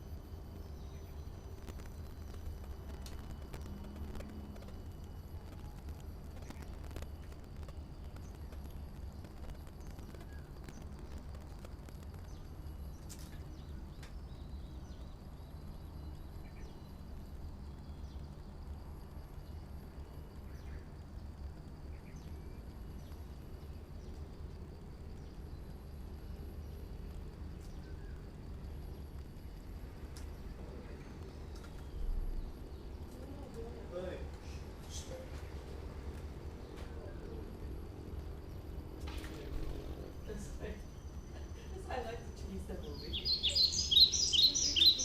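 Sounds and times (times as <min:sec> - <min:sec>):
steady low rumble: 0:00.0 - 0:45.0
birds tapping: 0:00.9 - 0:14.2, 0:38.5 - 0:45.0
faint bird chirps: 0:39.4 - 0:45.0.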